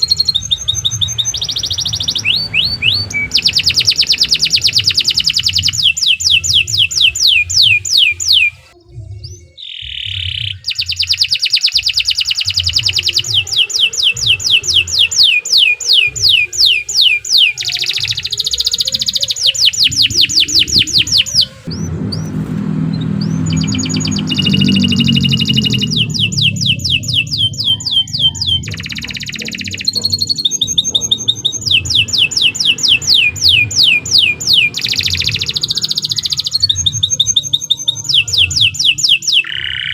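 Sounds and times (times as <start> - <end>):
low hum: 0.0 - 9.4, 19.4 - 38.7
canary singing trills: 0.0 - 39.9.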